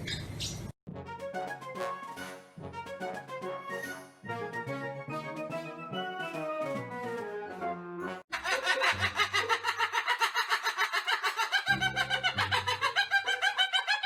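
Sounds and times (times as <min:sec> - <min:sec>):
rapid cackling laughter: 0:08.3 - 0:14.0.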